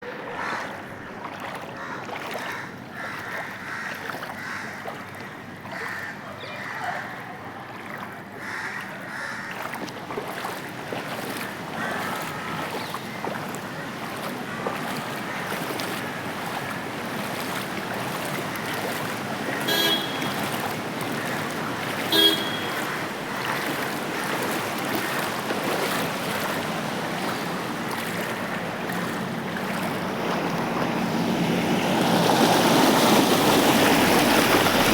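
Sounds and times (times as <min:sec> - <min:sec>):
floodwater rushing along street: 0:00.0 - 0:34.9
traffic: 0:00.0 - 0:34.9
vehicle horn honks: 0:19.6 - 0:20.6, 0:22.0 - 0:23.0.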